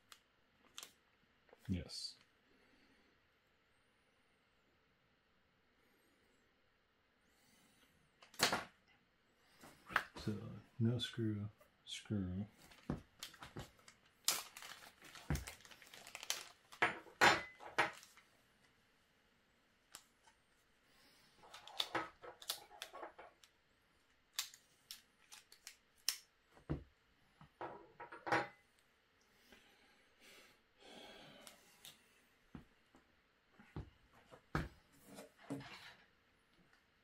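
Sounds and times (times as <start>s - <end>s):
plastic parts clicking: 21.5s - 23.6s.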